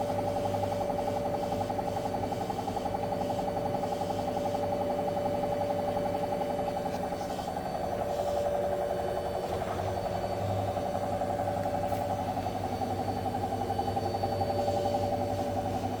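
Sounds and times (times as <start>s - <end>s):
washing machine motor whine: 0.0s - 16.0s
washing machine knocking: 7.8s - 15.3s.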